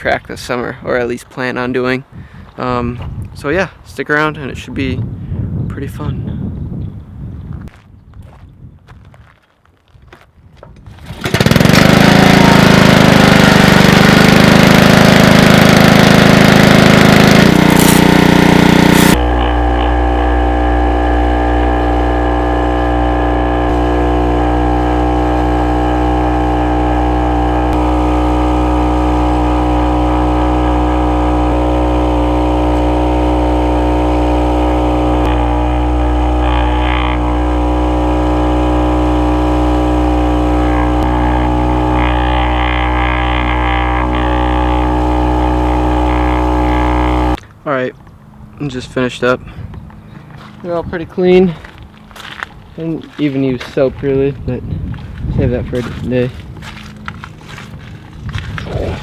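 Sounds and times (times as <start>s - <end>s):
small engine running: 10.9s - 47.4s, 49.8s - 59.0s
loud hissing rush: 17.3s - 19.2s.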